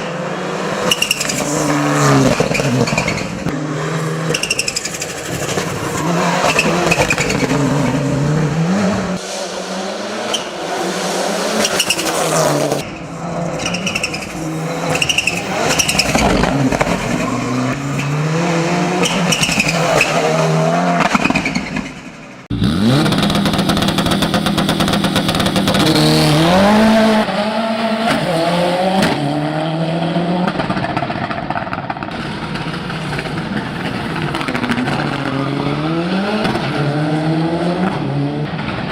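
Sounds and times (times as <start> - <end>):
car engine revving hard: 22.4 - 30.5.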